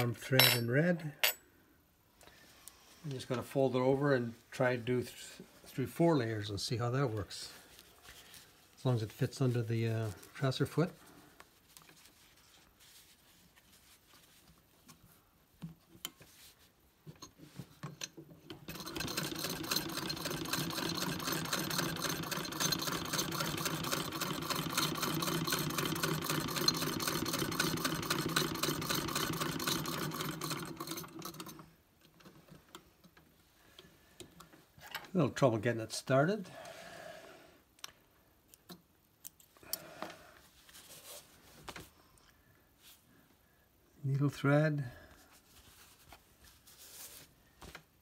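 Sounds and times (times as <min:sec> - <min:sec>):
sewing machine stitching: 0:18.6 - 0:31.6.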